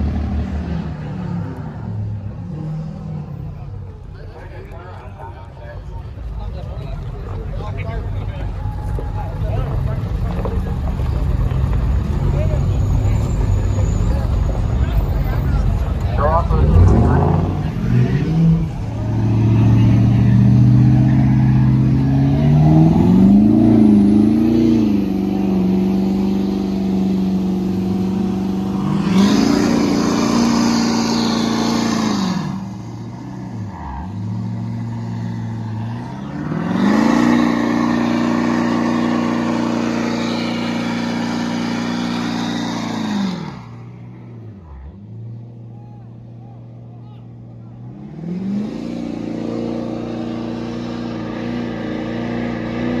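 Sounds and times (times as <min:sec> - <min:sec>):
truck engine revving: 0:00.0 - 0:53.0.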